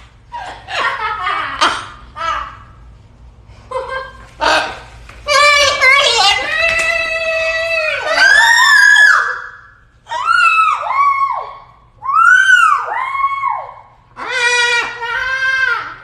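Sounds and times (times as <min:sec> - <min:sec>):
parrot screeching: 0:08.0 - 0:16.0.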